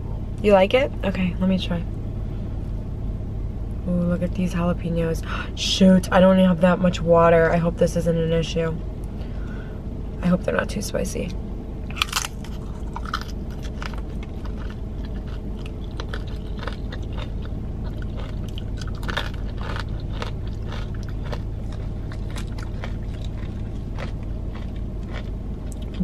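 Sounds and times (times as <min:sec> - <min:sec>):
steady low hum: 0:00.0 - 0:26.0
crunching tortilla chips: 0:11.9 - 0:26.0.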